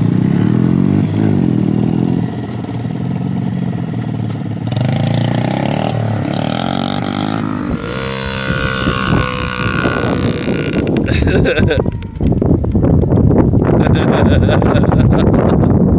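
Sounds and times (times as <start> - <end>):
motorcycle engine revving: 0.0 - 11.7.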